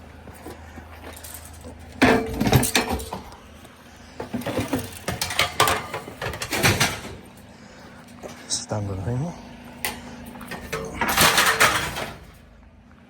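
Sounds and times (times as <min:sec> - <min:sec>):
scrap metal clattering: 0:00.3 - 0:07.5, 0:09.8 - 0:12.5.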